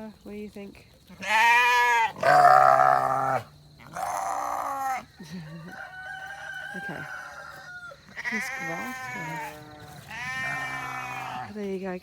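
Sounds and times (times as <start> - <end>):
farm animals bleating: 1.2 - 5.1, 6.8 - 11.7.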